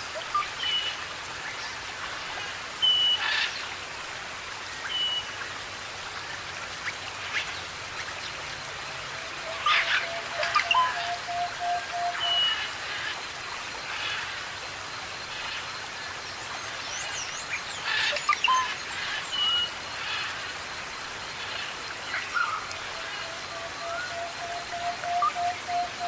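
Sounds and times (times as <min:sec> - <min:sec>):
forest birds calling: 0:09.5 - 0:13.1, 0:21.4 - 0:26.0
long level bird whistle: 0:09.9 - 0:12.5, 0:23.5 - 0:26.0.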